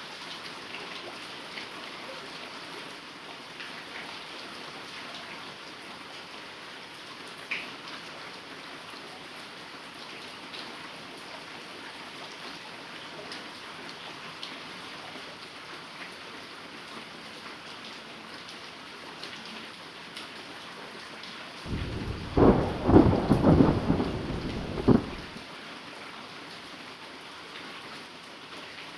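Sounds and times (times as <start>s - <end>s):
heavy rain falling: 21.7s - 25.4s
thunder rumble: 21.7s - 25.4s.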